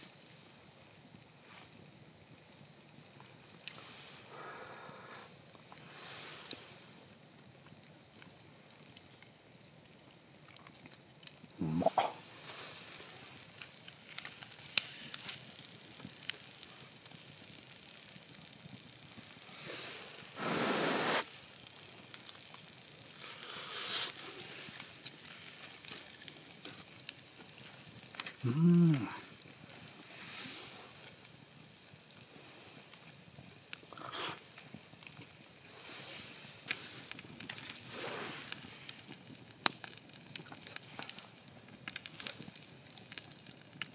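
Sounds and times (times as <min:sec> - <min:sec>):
pops and crackles: 0:01.4 - 0:43.9
food sizzling in a pan: 0:11.6 - 0:38.8.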